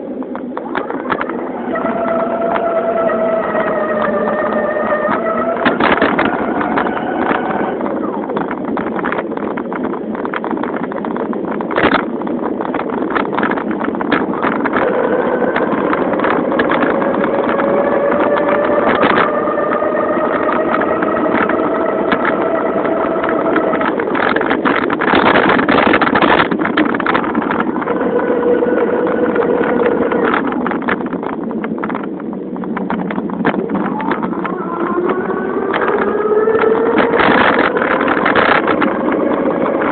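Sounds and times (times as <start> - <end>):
wind noise: 0.0 - 39.9
rapid clicks: 0.2 - 39.9
electric bicycle motor drone: 0.6 - 8.8, 14.6 - 24.4, 26.4 - 31.8, 33.5 - 39.9.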